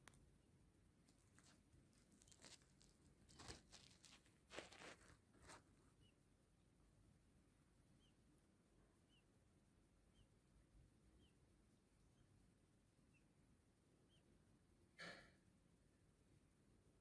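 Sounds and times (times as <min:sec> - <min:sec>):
faint rustles and scuffs: 0:01.0 - 0:06.1.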